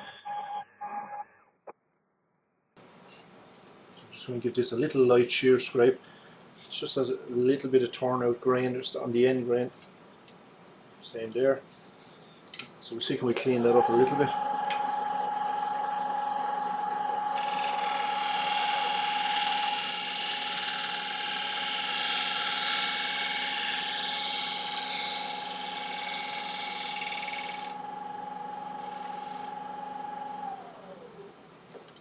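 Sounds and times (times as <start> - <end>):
wood lathe motor whine: 13.4 - 31.4.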